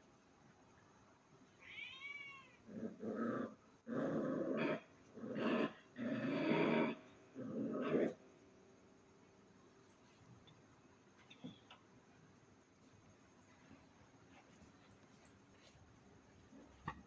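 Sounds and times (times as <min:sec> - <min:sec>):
cat meowing: 0:01.6 - 0:02.6.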